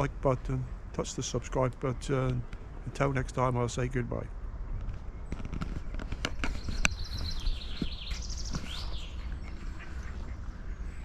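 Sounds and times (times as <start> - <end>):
low wind rumble: 0.0 - 11.0
small bird trilling: 6.5 - 9.5.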